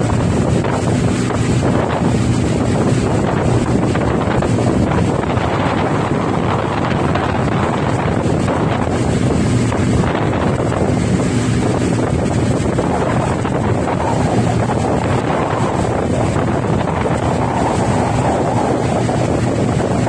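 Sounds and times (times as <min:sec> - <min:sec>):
propeller aircraft engine rushing: 0:00.0 - 0:20.0
wind on microphone: 0:00.0 - 0:20.0.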